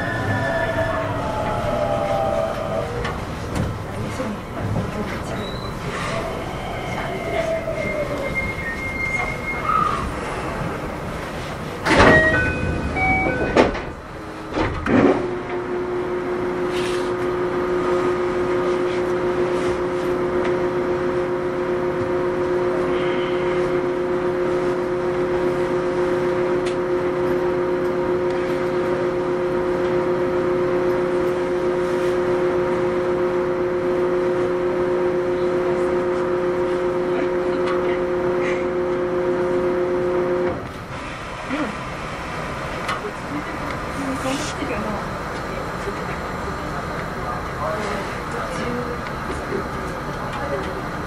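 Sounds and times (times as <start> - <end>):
onboard equipment humming: 0.0 - 51.0
train doors knocking: 11.8 - 15.4
door chime tones: 11.9 - 13.7.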